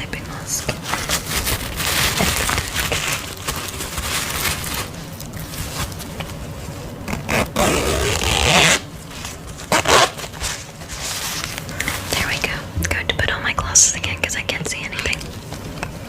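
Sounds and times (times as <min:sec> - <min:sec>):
soft rustling: 0:00.6 - 0:07.4, 0:08.2 - 0:13.3
zipper being pulled: 0:07.1 - 0:08.8, 0:09.7 - 0:11.1.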